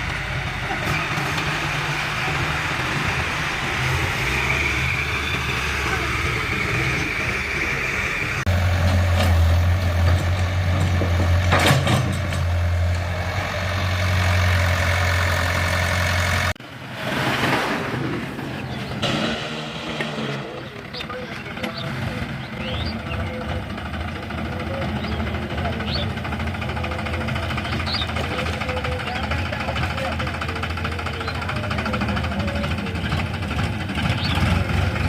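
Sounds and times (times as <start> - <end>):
tractor engines idling: 0.0 - 35.0.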